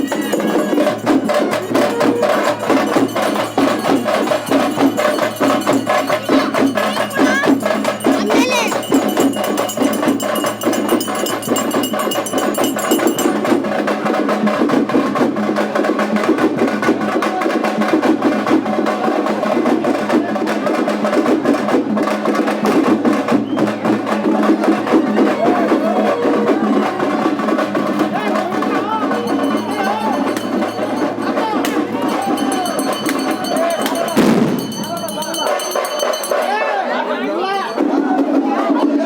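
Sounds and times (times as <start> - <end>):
high metallic ringing: 0.0 - 13.6, 28.7 - 36.8
voices: 0.0 - 14.7, 15.4 - 39.0
percussion music with drums: 0.0 - 39.0.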